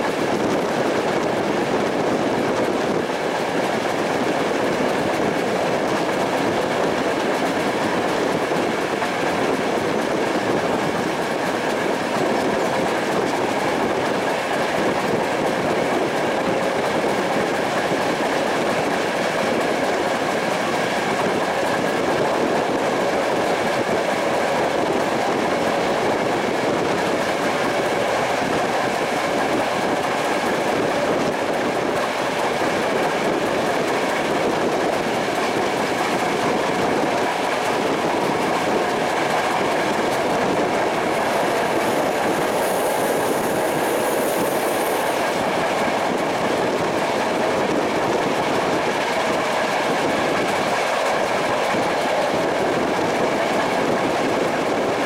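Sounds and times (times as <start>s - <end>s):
train wheels on rails: 0.0s - 55.0s
rushing air: 37.8s - 47.8s.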